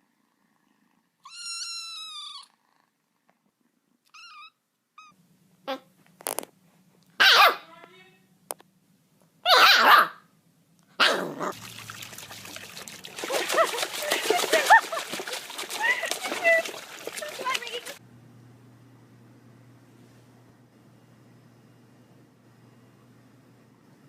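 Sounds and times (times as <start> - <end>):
steady low hum: 10.2 - 24.0.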